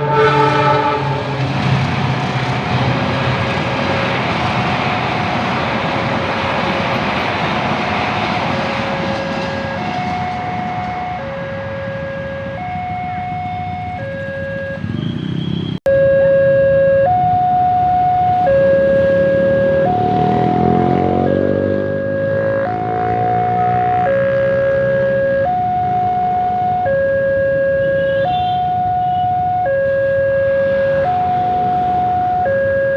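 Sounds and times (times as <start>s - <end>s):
passing train rumble: 0.0s - 15.8s, 17.1s - 26.9s, 30.6s - 32.5s
two-tone crossing alarm: 8.8s - 32.9s.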